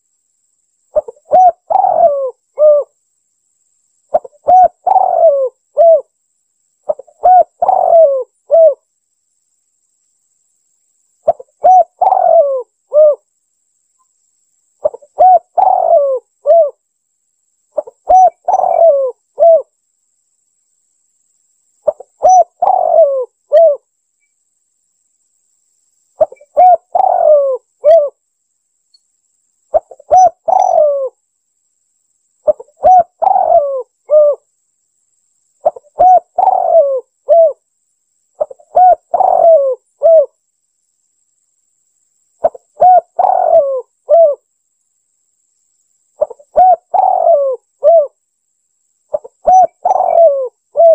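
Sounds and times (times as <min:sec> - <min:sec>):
dove cooing: 0:00.9 - 0:03.0, 0:04.1 - 0:06.1, 0:06.9 - 0:08.8, 0:11.2 - 0:13.2, 0:14.8 - 0:16.8, 0:17.8 - 0:19.7, 0:21.8 - 0:23.8, 0:26.2 - 0:28.2, 0:29.7 - 0:31.2, 0:32.4 - 0:34.4, 0:35.6 - 0:37.6, 0:38.4 - 0:40.4, 0:42.4 - 0:44.4, 0:46.2 - 0:48.2, 0:49.1 - 0:50.9.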